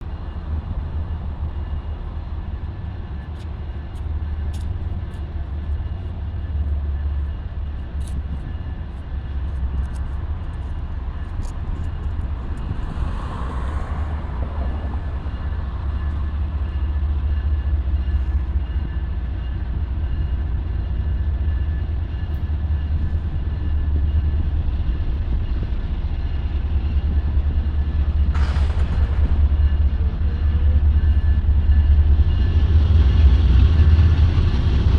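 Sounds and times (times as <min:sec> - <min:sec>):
diesel freight train rumble: 0:00.0 - 0:34.9
rushing sound: 0:28.2 - 0:32.2.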